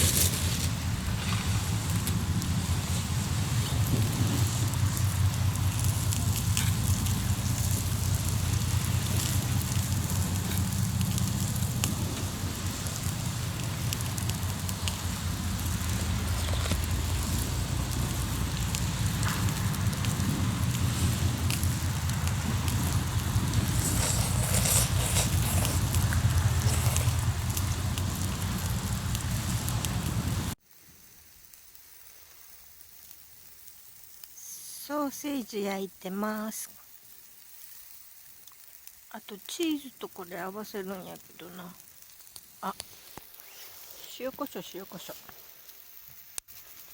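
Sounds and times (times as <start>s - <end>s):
steady low rumble: 0.0s - 30.6s
campfire crackling and popping: 0.0s - 34.4s, 36.4s - 46.9s.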